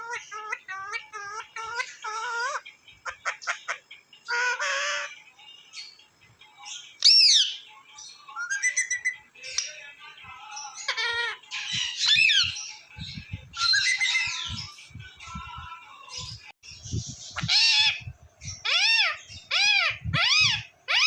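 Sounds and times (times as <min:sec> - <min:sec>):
parrots whistling: 0:00.0 - 0:05.1, 0:07.0 - 0:07.6, 0:08.4 - 0:09.7, 0:10.8 - 0:12.8, 0:13.5 - 0:14.7, 0:17.3 - 0:21.0
parrots squawking: 0:00.0 - 0:05.2, 0:07.0 - 0:07.6, 0:08.4 - 0:09.7, 0:10.5 - 0:14.8, 0:17.2 - 0:21.0.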